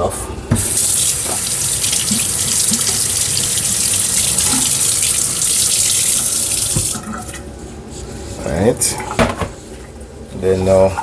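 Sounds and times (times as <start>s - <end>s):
tap running over washing hands: 0.5s - 7.1s.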